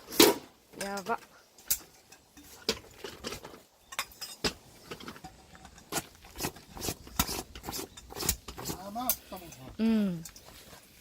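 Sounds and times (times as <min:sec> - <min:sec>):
light clicks and clinks: 0:00.8 - 0:05.9, 0:09.0 - 0:10.8.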